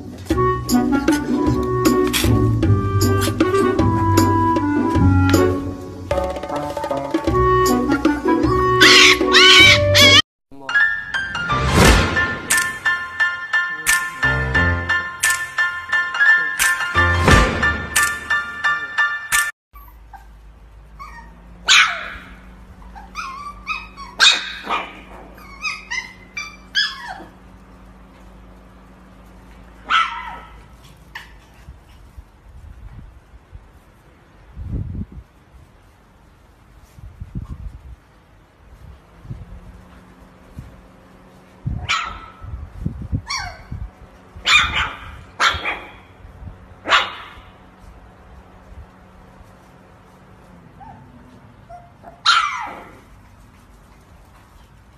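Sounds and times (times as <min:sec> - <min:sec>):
puppy barking and yipping: 0:08.7 - 0:10.2, 0:19.3 - 0:27.7, 0:29.7 - 0:32.1, 0:41.7 - 0:42.5, 0:43.2 - 0:43.7, 0:44.4 - 0:46.2, 0:46.8 - 0:47.6, 0:50.8 - 0:54.0
puppy yelp sliding down: 0:08.8 - 0:10.2, 0:22.9 - 0:27.4.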